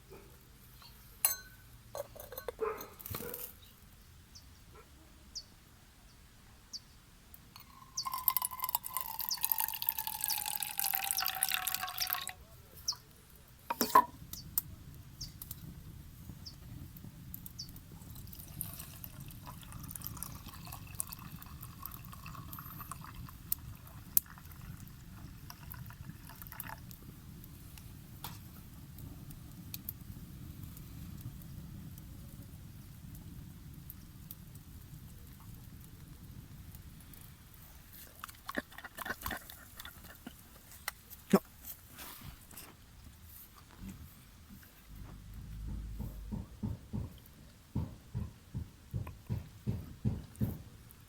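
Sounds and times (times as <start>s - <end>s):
small crackles: 7.4s - 45.4s
liquid pouring from a bottle: 7.6s - 12.3s, 18.3s - 26.9s
low steady rumble: 43.9s - 46.6s.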